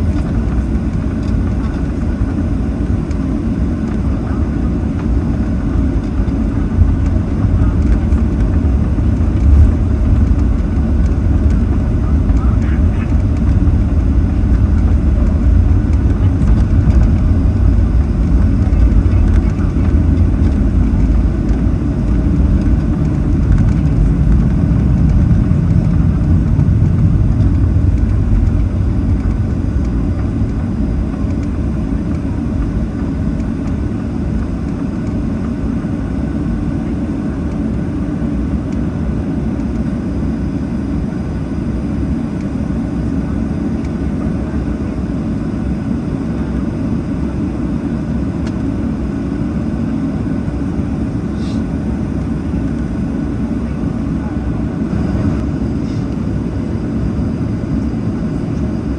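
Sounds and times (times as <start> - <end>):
aircraft rolling on taxiway: 0.0 - 58.9
jet engines rumbling: 0.0 - 58.9.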